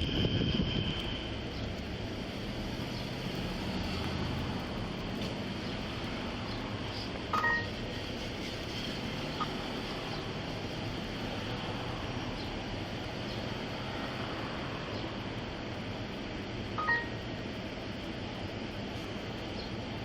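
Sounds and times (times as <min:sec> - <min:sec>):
low hum: 0:00.0 - 0:20.0
electronic beep: 0:07.3 - 0:07.7, 0:16.8 - 0:17.2.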